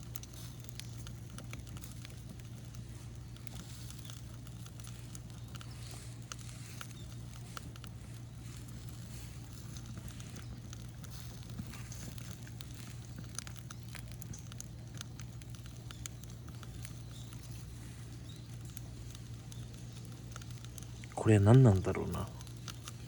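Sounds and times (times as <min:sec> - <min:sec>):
bonfire crackling and popping: 0:00.0 - 0:23.0.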